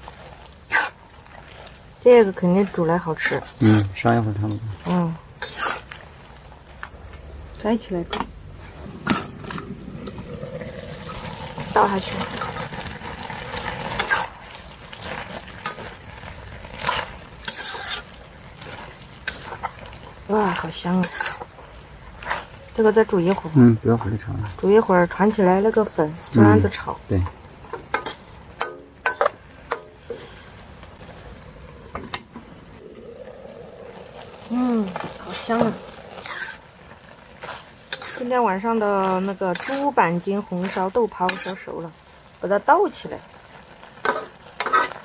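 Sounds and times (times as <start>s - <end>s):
spatula scraping a pan: 0.0s - 6.2s, 8.1s - 23.6s, 34.0s - 41.8s, 43.9s - 45.0s
food sizzling in a pan: 0.0s - 45.0s
pan hissing: 8.4s - 14.7s, 29.4s - 38.7s.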